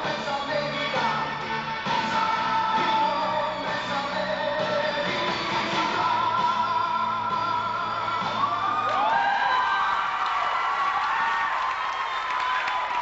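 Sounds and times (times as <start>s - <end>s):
audience cheering: 8.3s - 13.0s.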